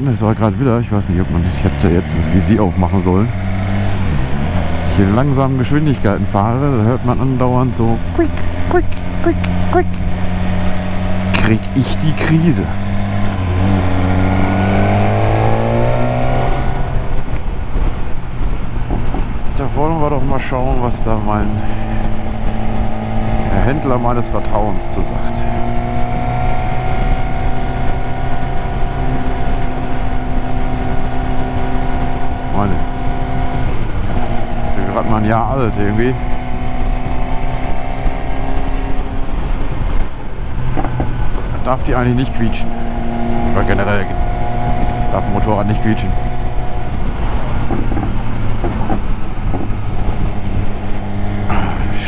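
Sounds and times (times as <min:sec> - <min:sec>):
motorcycle engine running: 0:00.0 - 0:52.0
wind and road noise: 0:00.0 - 0:52.0
wind rushing over helmet: 0:46.0 - 0:51.6.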